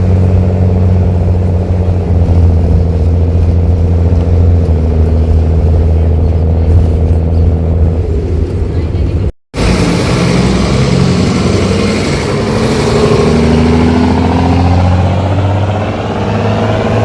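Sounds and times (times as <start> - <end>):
bus diesel engine accelerating: 0.0 - 17.0.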